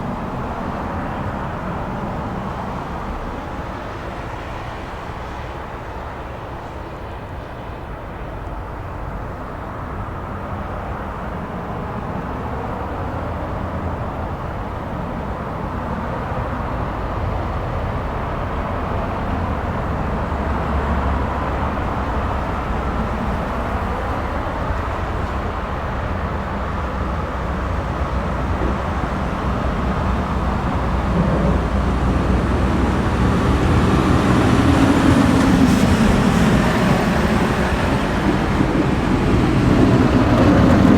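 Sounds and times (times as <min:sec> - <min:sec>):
snow plow truck engine rumble: 0:10.5 - 0:40.9.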